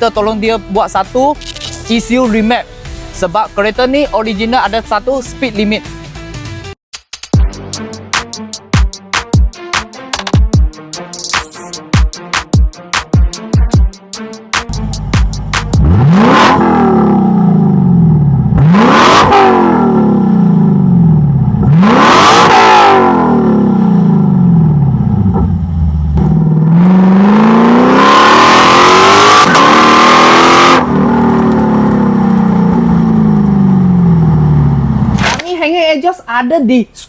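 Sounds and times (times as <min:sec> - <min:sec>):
car engine revving: 0:14.7 - 0:35.4
exhaust crackling: 0:14.7 - 0:35.7.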